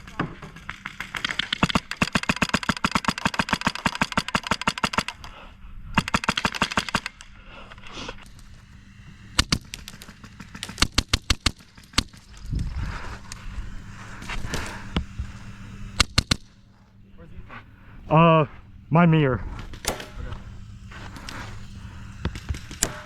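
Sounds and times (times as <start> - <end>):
airsoft guns firing: 0.0 - 5.3, 6.0 - 7.3, 8.3 - 12.5, 13.8 - 16.7, 19.4 - 23.0.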